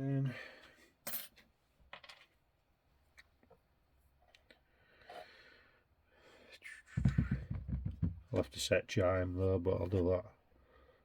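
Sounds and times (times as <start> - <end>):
soft breath: 4.6 - 7.0, 10.5 - 11.0.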